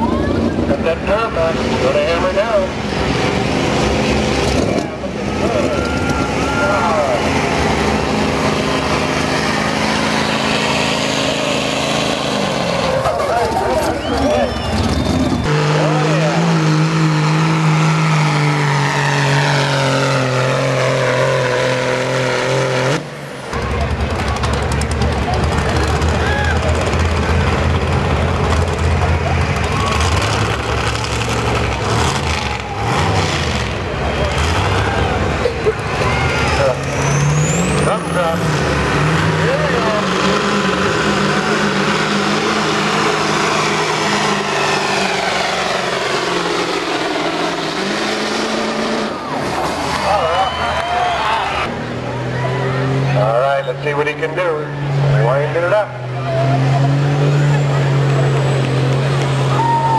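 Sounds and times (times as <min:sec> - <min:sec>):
pickup truck engine at high revs: 0:00.0 - 0:59.9.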